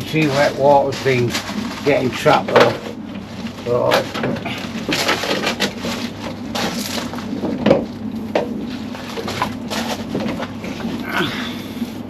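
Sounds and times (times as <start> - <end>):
rubber seal crackling and scraping: 0.0 - 11.2.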